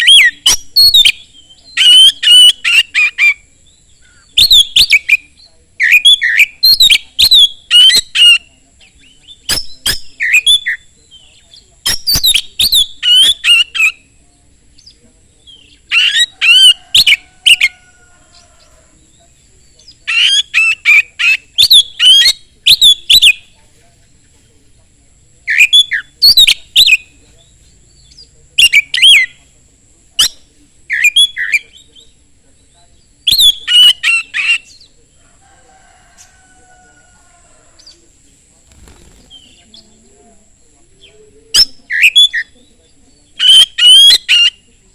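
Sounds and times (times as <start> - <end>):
songbird whistling scratchy phrases: 0.0 - 14.1, 15.5 - 17.8, 19.8 - 23.5, 25.4 - 27.2, 28.1 - 29.4, 30.2 - 31.9, 33.2 - 34.9, 41.5 - 42.6, 43.3 - 44.7.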